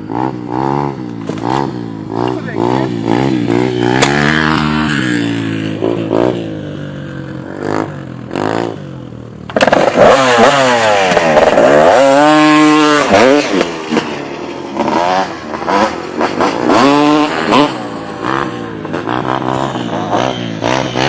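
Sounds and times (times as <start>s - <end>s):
dirt bike engines revving: 0.0s - 21.0s.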